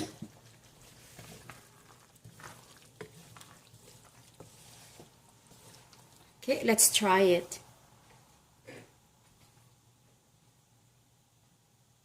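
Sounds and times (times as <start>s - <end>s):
sauce stirring in a pan: 0.0s - 7.0s
utensil scraping and clicking on pan: 0.1s - 6.3s.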